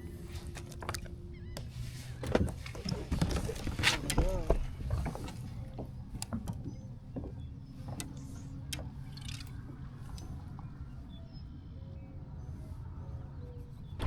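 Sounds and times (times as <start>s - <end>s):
light clicks and taps: 0.4s - 10.8s.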